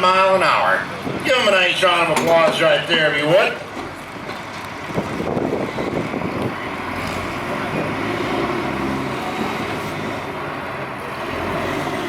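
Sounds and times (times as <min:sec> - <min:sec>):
truck engine running at low revs: 0:03.4 - 0:12.0.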